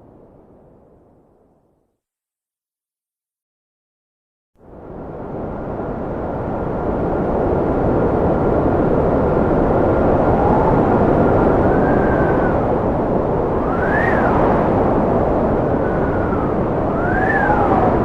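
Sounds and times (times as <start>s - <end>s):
strong wind howling: 4.6s - 18.0s.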